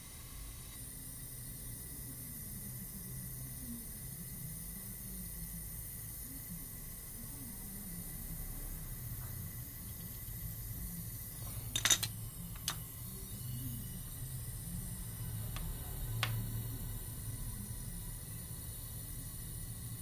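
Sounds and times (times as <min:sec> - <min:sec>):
steady low hum: 0:00.0 - 0:20.0
metal tools clinking: 0:11.8 - 0:12.8.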